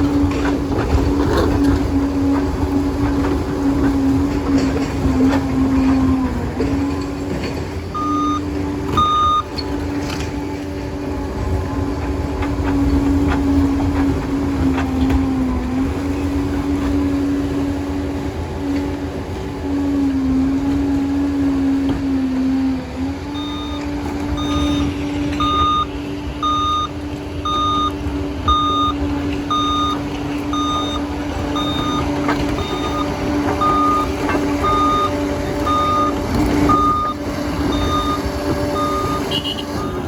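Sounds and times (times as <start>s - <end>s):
bulldozer diesel engine: 0.0s - 40.0s
reversing alarm beeping: 7.9s - 9.7s, 23.3s - 40.0s.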